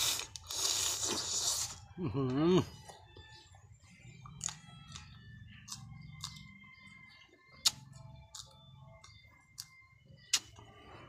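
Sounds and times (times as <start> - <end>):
person biting and chewing pepper: 0.0 - 1.9, 4.2 - 6.5, 7.6 - 10.7.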